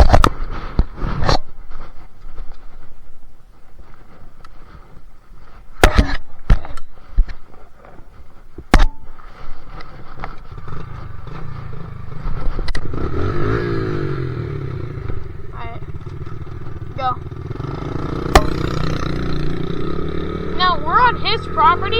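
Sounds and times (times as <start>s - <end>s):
dirt bike engine rumble: 0.0s - 21.9s
sharp knocks and clatters: 17.5s - 19.8s.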